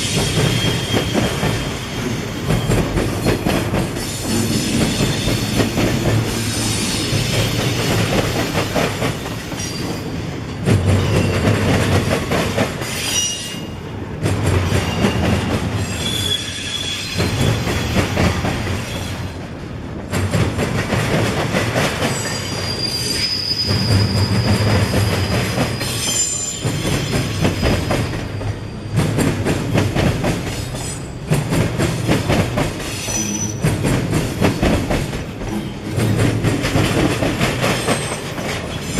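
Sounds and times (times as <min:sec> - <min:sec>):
train wheels clattering over rail joints: 0:00.0 - 0:13.2, 0:14.2 - 0:38.9
high-pitched wheel squeals: 0:15.8 - 0:17.5, 0:22.1 - 0:29.0, 0:32.9 - 0:33.6.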